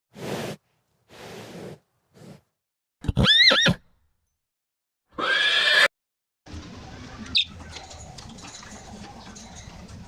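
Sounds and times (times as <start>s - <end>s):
bird chirp: 7.1s - 8.1s.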